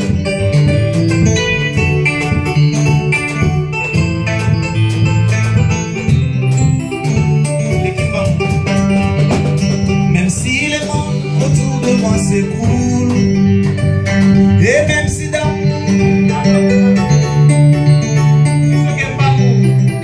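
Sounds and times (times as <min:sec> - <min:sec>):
steady drum beat: 0:00.0 - 0:19.6
live band playing: 0:00.0 - 0:20.0
person's voice: 0:07.8 - 0:08.8, 0:14.6 - 0:16.9, 0:18.7 - 0:19.8.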